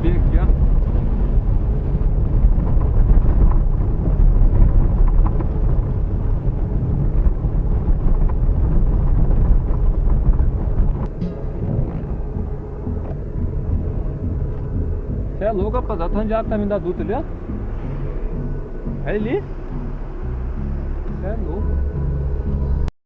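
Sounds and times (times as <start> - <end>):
car engine and tyre rumble: 0.0 - 22.9
wind buffeting microphone: 0.0 - 22.9.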